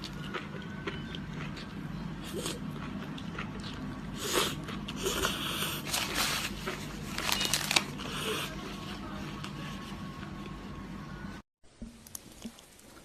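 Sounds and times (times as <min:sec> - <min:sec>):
chewing and wet mouth noises: 0:00.0 - 0:05.8.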